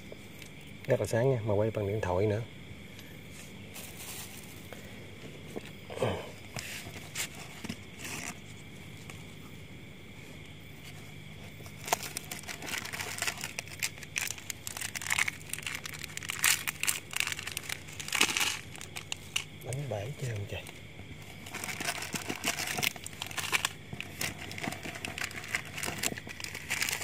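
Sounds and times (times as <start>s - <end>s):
plastic bags crinkling: 11.8s - 19.6s, 21.3s - 27.0s.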